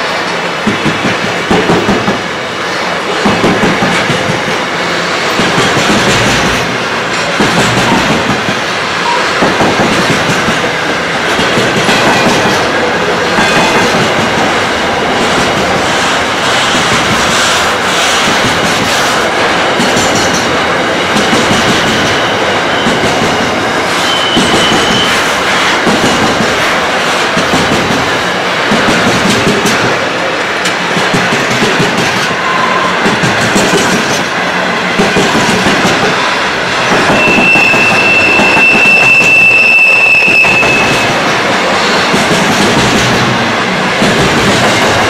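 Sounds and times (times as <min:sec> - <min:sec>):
freight train rolling past: 0:00.0 - 0:45.0
wheels clacking over rail joints: 0:03.1 - 0:37.8
faint wheel squeal: 0:37.1 - 0:41.1.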